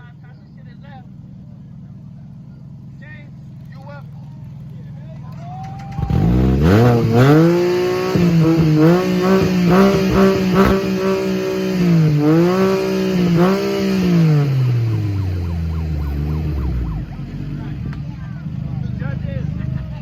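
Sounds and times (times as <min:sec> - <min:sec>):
engine revving through loud exhaust: 0:06.0 - 0:18.0.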